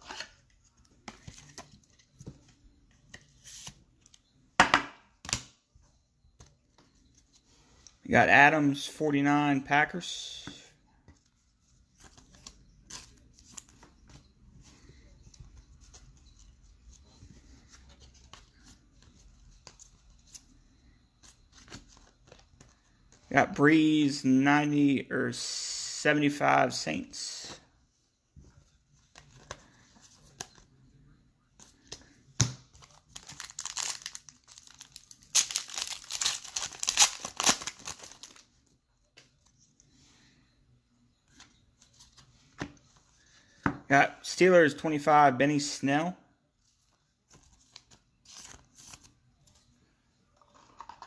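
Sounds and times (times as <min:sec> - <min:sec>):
trading cards and wrappers handled: 0:11.0 - 0:23.3, 0:31.6 - 0:39.9, 0:46.6 - 0:51.0
plastic foil wrapper crinkling: 0:32.8 - 0:38.4.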